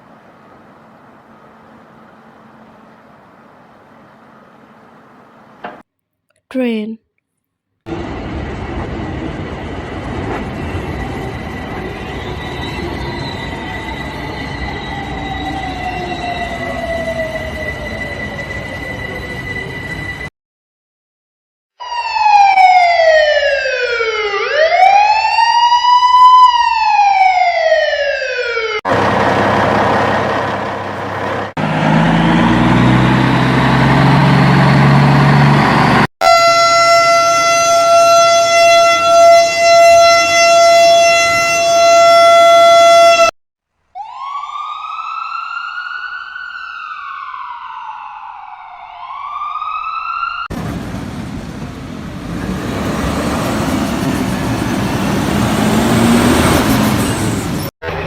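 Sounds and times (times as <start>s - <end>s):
traffic noise: 0.0s - 5.8s, 28.9s - 36.1s, 50.5s - 58.0s
siren wailing: 11.2s - 20.2s, 21.8s - 29.0s, 35.6s - 43.3s, 44.0s - 50.5s, 52.6s - 58.0s
rumbling engine: 28.9s - 36.1s, 50.5s - 58.0s.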